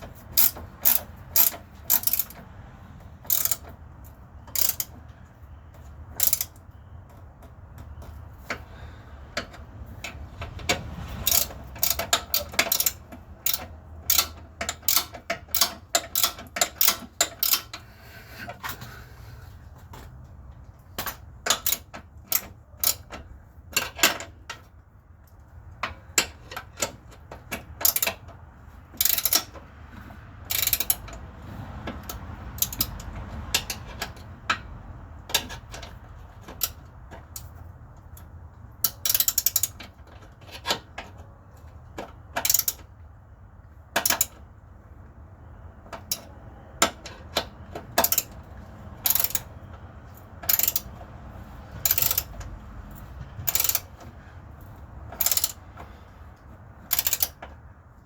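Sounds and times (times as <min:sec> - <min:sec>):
ratchet wrench clicking: 0:00.3 - 0:02.4, 0:03.2 - 0:05.0, 0:06.1 - 0:06.6, 0:10.5 - 0:17.9, 0:21.0 - 0:23.1, 0:26.2 - 0:28.3, 0:29.0 - 0:31.2, 0:31.9 - 0:34.6, 0:35.2 - 0:37.5, 0:38.1 - 0:40.0, 0:42.3 - 0:42.9, 0:44.0 - 0:44.4, 0:46.0 - 0:49.5, 0:50.1 - 0:56.1, 0:56.8 - 0:57.6.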